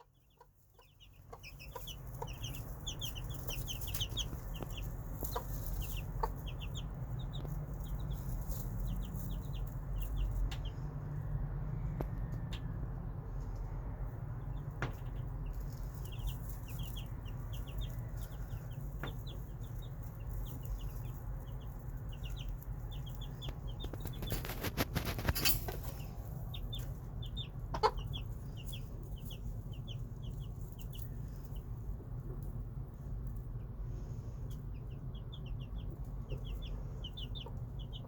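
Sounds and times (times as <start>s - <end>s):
chicks peeping: 0.0s - 38.0s
low rumble: 0.1s - 38.0s
rustling: 0.5s - 10.6s, 13.3s - 27.1s.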